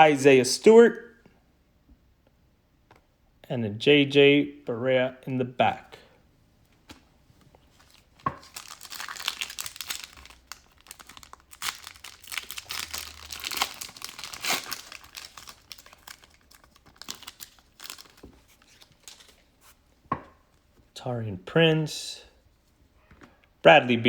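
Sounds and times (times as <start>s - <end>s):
foil wrapper crinkling and tearing: 7.8s - 19.5s.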